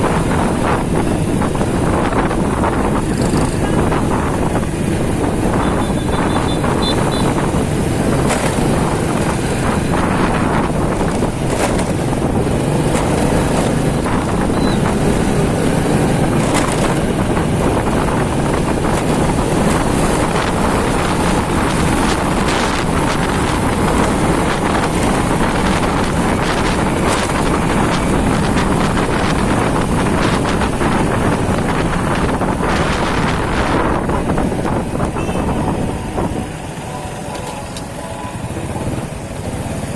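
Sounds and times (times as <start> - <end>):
motorcycle engine running: 0.0 - 39.9
sharp traffic sounds: 0.0 - 39.9
wind rushing over microphone: 0.0 - 39.9.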